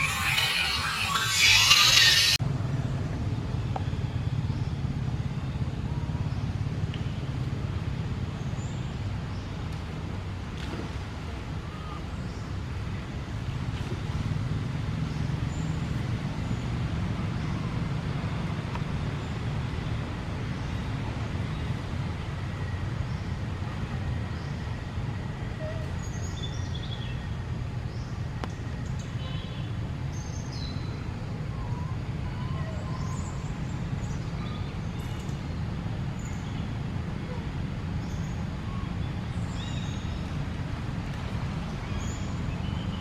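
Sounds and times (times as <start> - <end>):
faint high chirps: 0.0 - 2.4.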